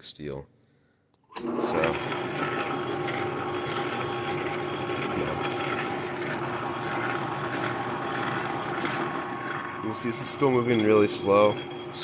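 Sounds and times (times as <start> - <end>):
metal lathe humming: 1.4 - 12.0
motor whine: 1.4 - 12.0.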